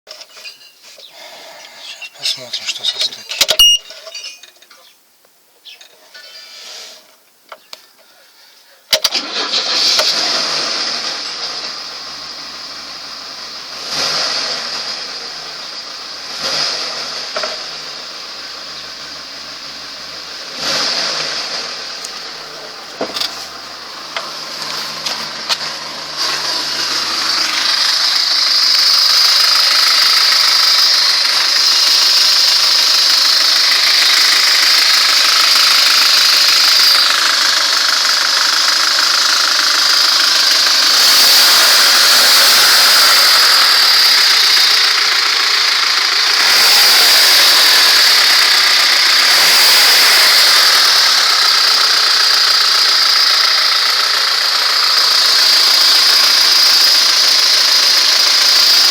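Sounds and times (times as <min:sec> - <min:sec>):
car engine running: 0:09.1 - 0:58.9
dull engine knocking: 0:27.8 - 0:41.8.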